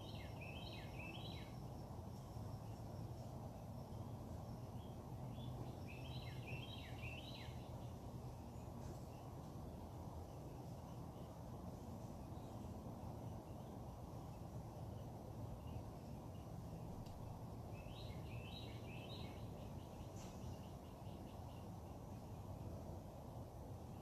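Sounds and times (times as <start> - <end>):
birds chirping: 4.6 - 11.5, 12.2 - 22.4.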